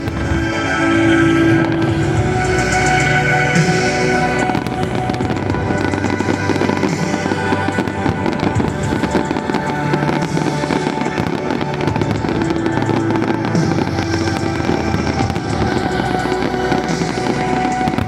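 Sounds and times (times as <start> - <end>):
fireworks crackling and popping: 0.0 - 18.0
music: 0.0 - 18.0.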